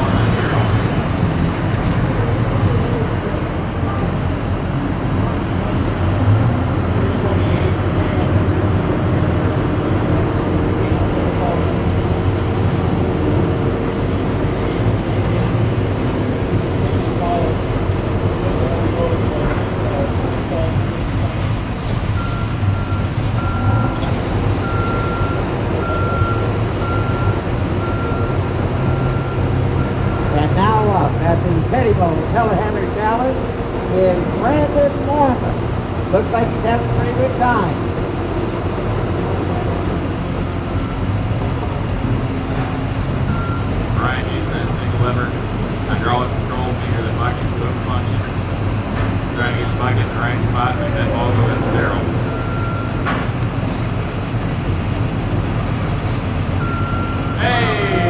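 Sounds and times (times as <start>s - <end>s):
diesel engine running: 0.0s - 58.0s
backup alarm beeping: 22.1s - 30.8s, 52.2s - 53.0s, 56.6s - 58.0s.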